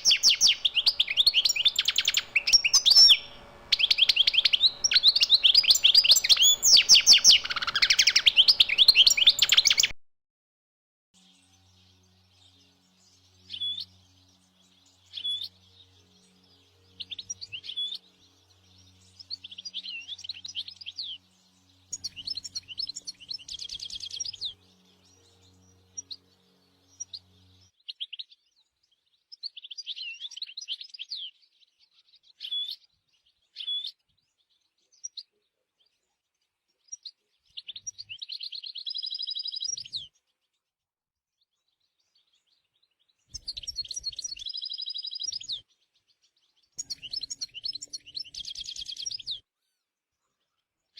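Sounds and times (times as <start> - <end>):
goldfinch twittering song: 0.0 - 9.9, 11.2 - 35.9, 36.8 - 40.2, 41.6 - 49.4.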